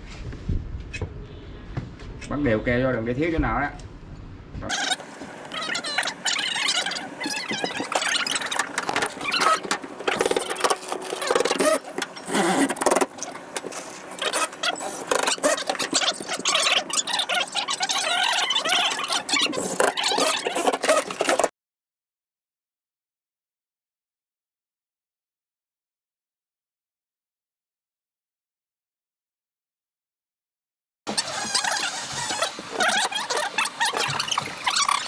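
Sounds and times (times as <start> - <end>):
glue spreader scraping and squeaking: 4.7 - 21.5, 31.1 - 35.0.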